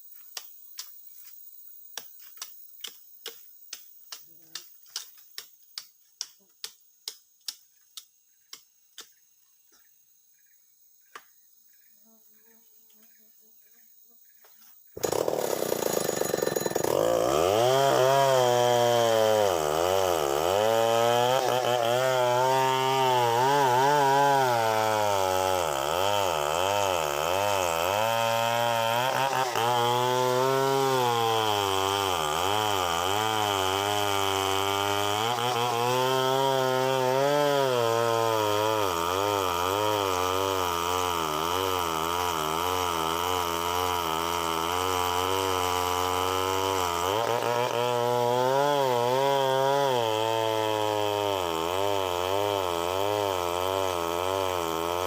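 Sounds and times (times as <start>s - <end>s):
chainsaw cutting into tree: 15.0s - 55.0s.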